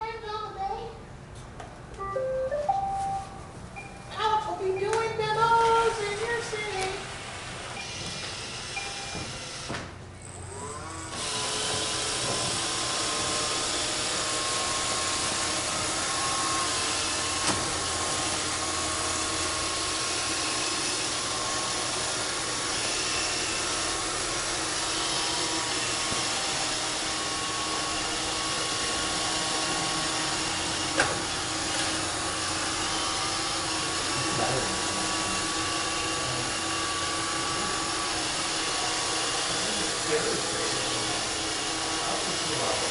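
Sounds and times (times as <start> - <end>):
robot vacuum motor humming: 5.5 - 42.9.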